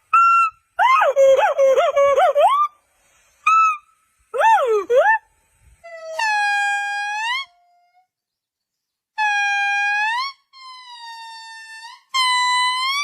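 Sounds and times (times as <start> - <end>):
monkey chirping and warbling: 9.2 - 13.0.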